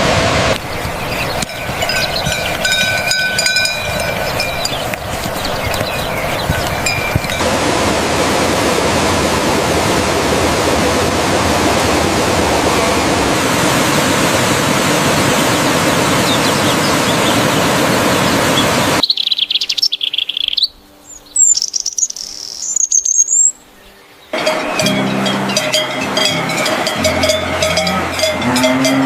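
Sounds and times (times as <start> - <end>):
loud steady noise: 0.0 - 19.0, 24.3 - 29.0
high bird chirps: 0.6 - 7.4, 16.2 - 28.6.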